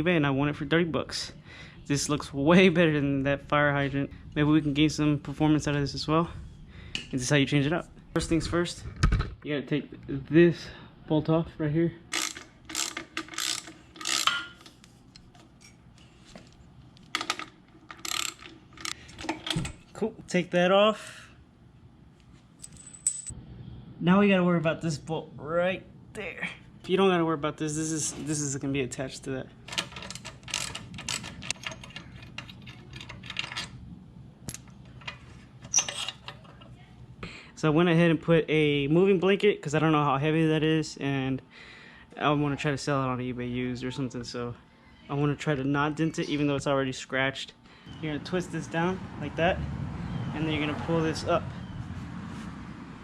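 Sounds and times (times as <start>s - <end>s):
ratchet wrench clicking: 12.1s - 14.6s, 17.2s - 19.0s.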